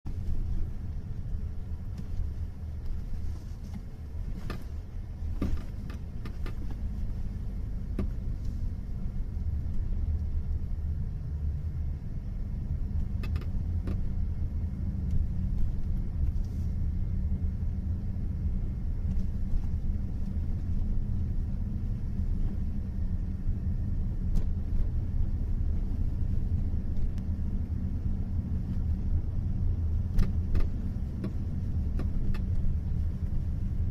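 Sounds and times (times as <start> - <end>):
car rumbling under way: 0.0 - 33.9.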